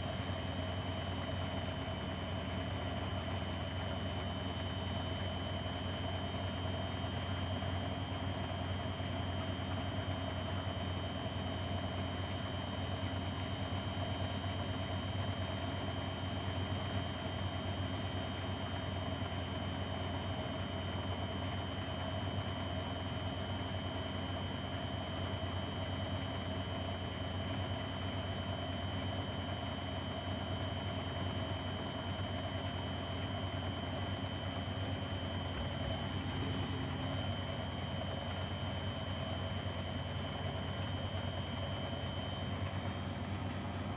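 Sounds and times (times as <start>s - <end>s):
washing machine running: 21.3s - 43.9s.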